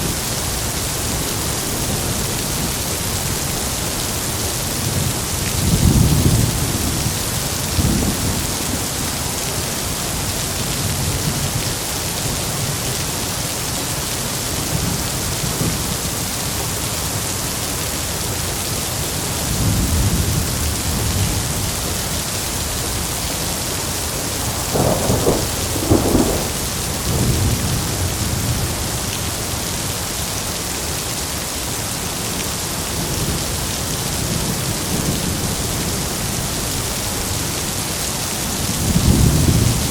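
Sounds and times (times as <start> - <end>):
heavy rain: 0.0 - 39.9
thunder rumbling: 24.4 - 28.8
sharp thunder cracks: 24.5 - 27.8.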